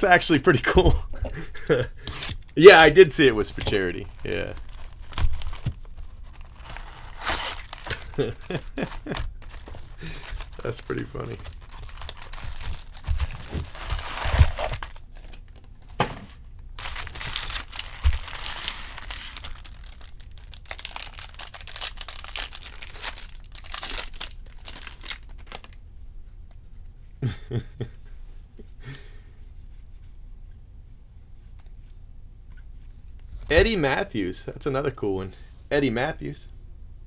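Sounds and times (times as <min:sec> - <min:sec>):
foil wrappers tearing and crinkling: 0:02.0 - 0:15.6, 0:16.8 - 0:25.8.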